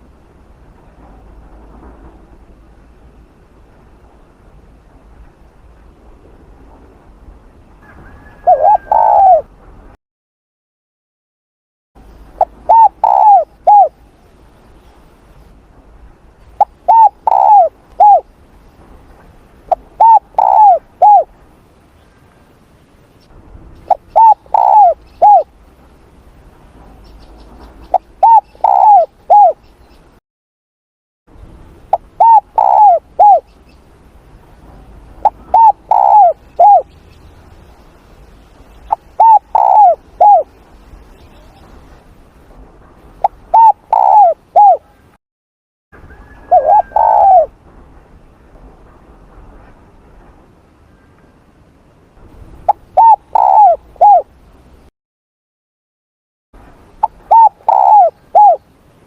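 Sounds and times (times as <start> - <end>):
dove cooing: 8.2 - 9.5, 12.4 - 14.0, 16.6 - 18.3, 19.7 - 21.3, 23.9 - 25.5, 27.9 - 29.6, 31.9 - 33.5, 35.2 - 36.9, 38.9 - 40.5, 43.2 - 45.0, 46.2 - 47.5, 52.7 - 54.3, 57.0 - 58.6.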